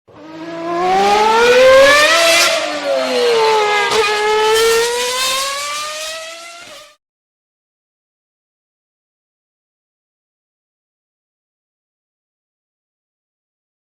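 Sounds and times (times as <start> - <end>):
car engine revving: 0.1 - 7.0.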